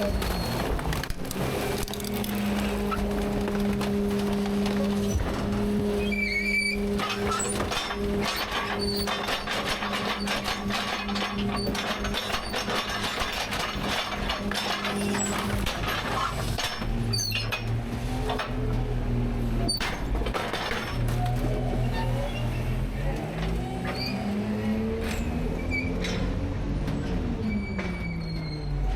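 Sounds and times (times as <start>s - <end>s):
trash cracking and snapping: 0.0s - 19.0s, 19.6s - 21.8s
engine and hydraulic hum: 0.0s - 28.9s.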